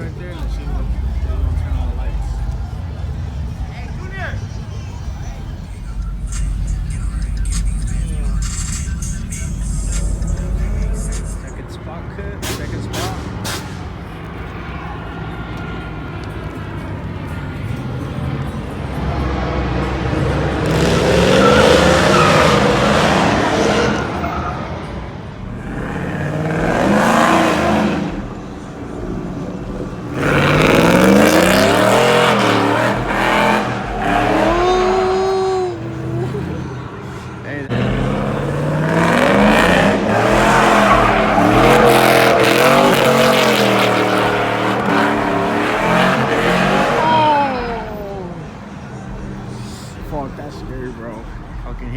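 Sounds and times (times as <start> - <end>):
tyres spinning with rushing hiss: 0.0 - 14.0
tire squeal: 0.0 - 51.6
truck engine revving hard: 0.0 - 51.9.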